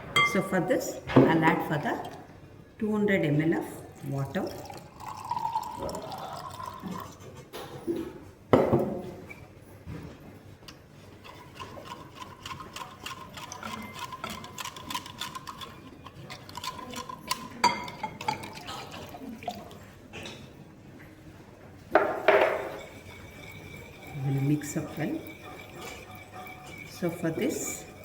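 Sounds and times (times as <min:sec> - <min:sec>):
utensil clinking against bowl: 0:00.2 - 0:00.6, 0:11.2 - 0:20.5, 0:22.0 - 0:28.0
water pouring into a bowl: 0:04.0 - 0:07.2, 0:11.3 - 0:20.0, 0:22.5 - 0:28.0.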